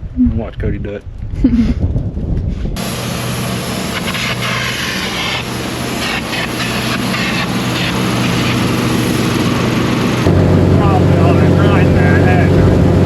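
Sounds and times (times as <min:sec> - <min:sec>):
engine running steadily: 0:02.7 - 0:13.0.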